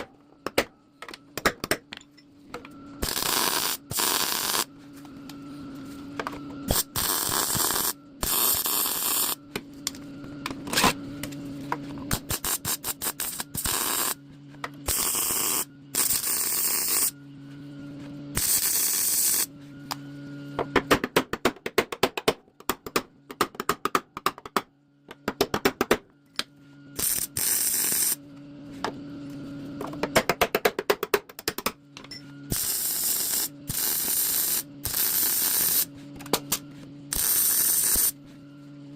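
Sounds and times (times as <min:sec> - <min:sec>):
welder humming: 0:02.5 - 0:17.6, 0:18.3 - 0:20.6, 0:27.0 - 0:28.2, 0:32.4 - 0:38.3
welder crackling sizzle: 0:03.0 - 0:04.7, 0:06.7 - 0:09.4, 0:12.1 - 0:14.2, 0:14.9 - 0:17.1, 0:18.4 - 0:19.5, 0:27.0 - 0:28.2, 0:32.5 - 0:35.9, 0:37.1 - 0:38.1.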